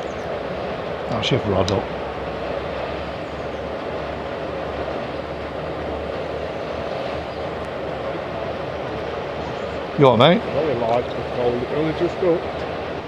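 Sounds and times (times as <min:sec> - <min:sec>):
steady low rumbling: 0:00.0 - 0:13.0.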